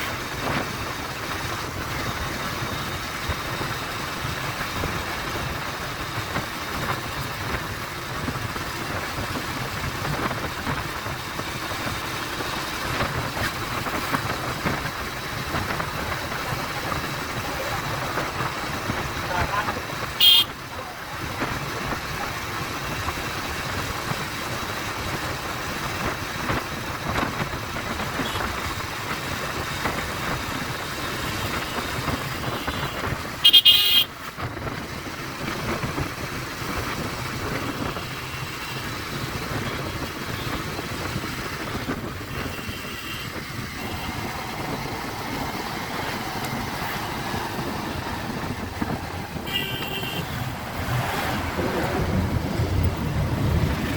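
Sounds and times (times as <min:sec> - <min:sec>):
motorcycle engine and wind: 0:00.0 - 0:53.9
motorcycle horn toot: 0:20.2 - 0:20.6, 0:31.2 - 0:34.1, 0:42.4 - 0:44.1, 0:49.4 - 0:50.4.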